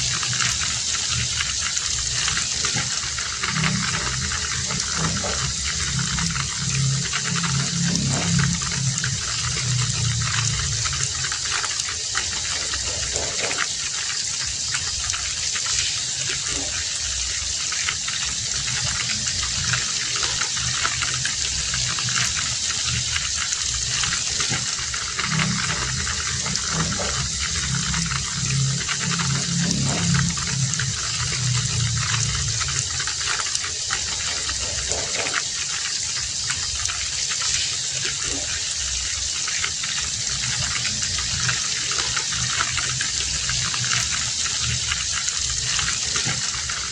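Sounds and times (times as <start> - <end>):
low rumble: 0.0 - 13.7, 18.2 - 35.6
heavy rain hissing: 0.0 - 46.9.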